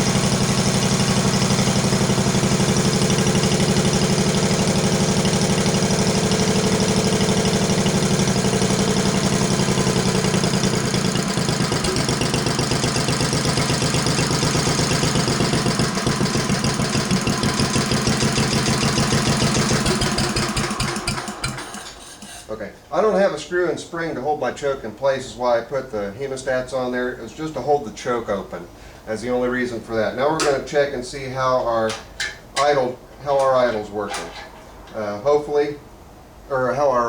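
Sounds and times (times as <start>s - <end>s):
single-cylinder engine idling: 0.0s - 22.6s.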